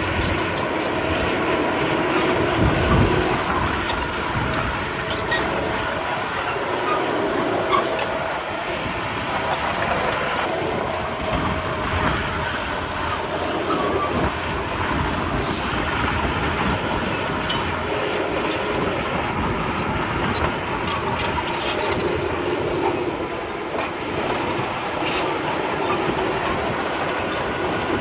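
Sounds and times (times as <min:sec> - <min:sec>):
clicks and clanks: 0:00.0 - 0:02.3, 0:03.8 - 0:05.8, 0:16.5 - 0:23.2, 0:23.8 - 0:28.0
bulldozer diesel engine running: 0:00.0 - 0:28.0.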